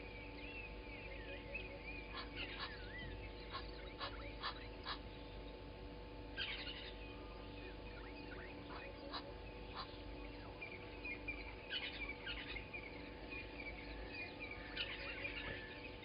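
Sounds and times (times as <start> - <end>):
low repeated bird call: 0.0 - 16.0
whistled bird notes: 6.4 - 16.0.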